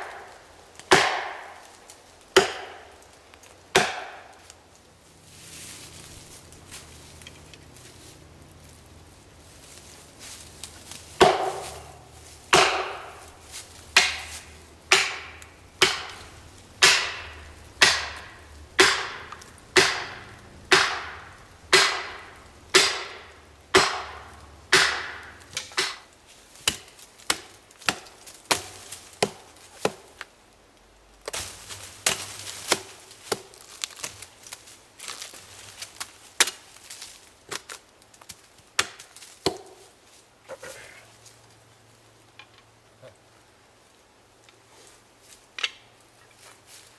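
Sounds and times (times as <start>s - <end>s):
heavy blows into wood: 11.2s - 30.1s.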